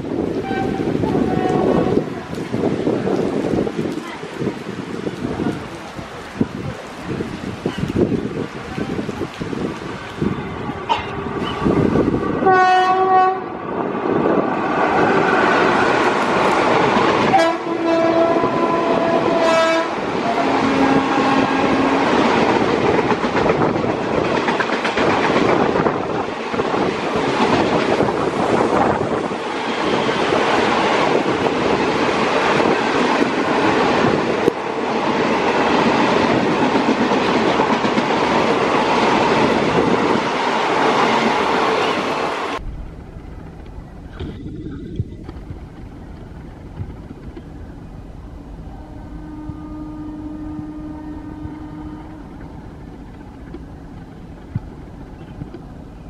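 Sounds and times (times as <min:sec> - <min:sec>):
train coaches clickety-clack: 0:00.0 - 0:47.6, 0:51.3 - 0:56.0
heavy rain: 0:00.0 - 0:56.0
train horn blast: 0:00.4 - 0:02.4, 0:10.7 - 0:13.6, 0:17.3 - 0:22.3, 0:48.7 - 0:52.5.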